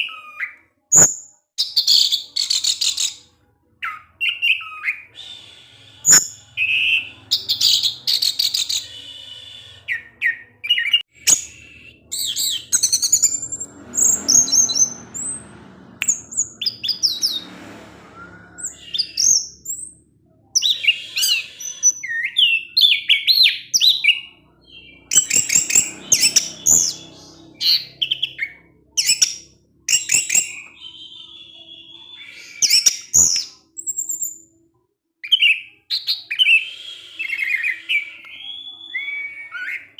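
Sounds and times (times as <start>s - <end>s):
thrush singing chattering song: 5.0s - 33.7s.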